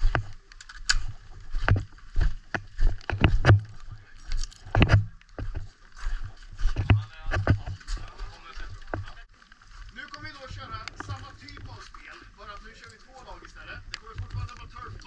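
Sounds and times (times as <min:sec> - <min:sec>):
footsteps walking: 0:00.0 - 0:15.0
gear knocking and rubbing: 0:01.6 - 0:03.8.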